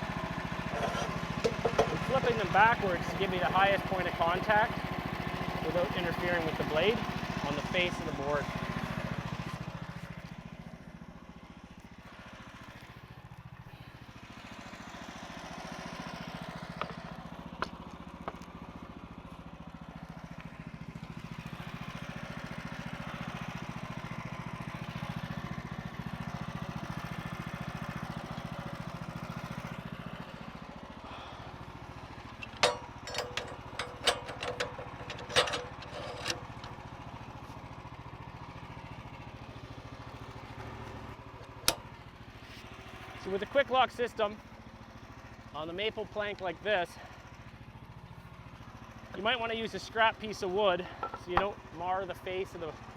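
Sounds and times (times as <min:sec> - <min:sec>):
engine running: 0:00.0 - 0:52.9
sharp knocks: 0:00.7 - 0:02.0.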